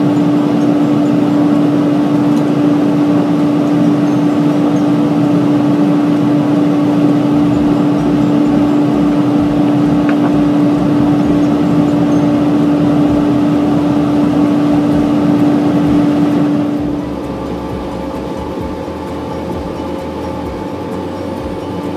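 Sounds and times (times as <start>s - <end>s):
mechanical hum with whir: 0.0s - 21.9s.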